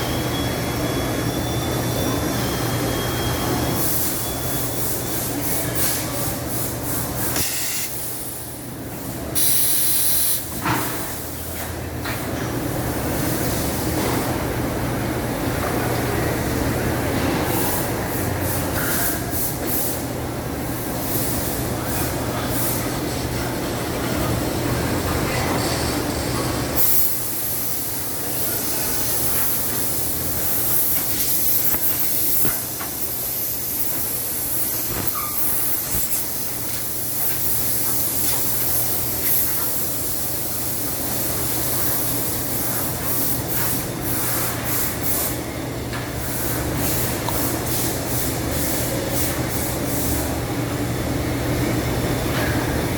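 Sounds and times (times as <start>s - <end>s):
short air bursts: 4.8s - 8.6s, 9.4s - 11.2s
compressed air hiss: 5.4s - 8.6s, 9.4s - 11.1s.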